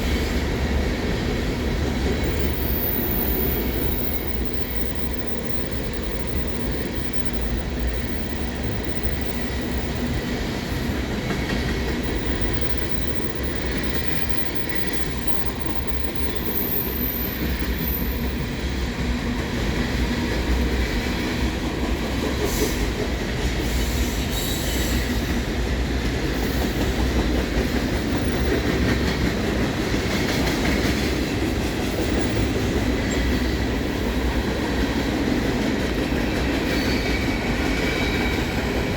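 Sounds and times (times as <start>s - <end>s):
steel wheels rumbling on rail: 0.0s - 38.9s
high wheel squeal: 12.1s - 18.7s.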